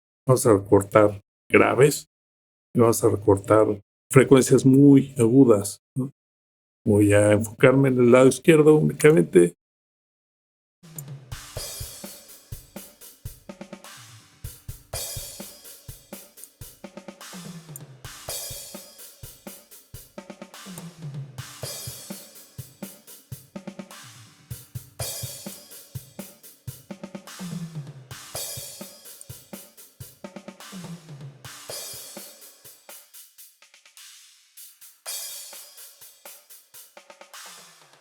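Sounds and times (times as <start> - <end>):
hi-hat and cymbal wash: 10.9 - 38.0
rock drum beat: 10.9 - 38.0.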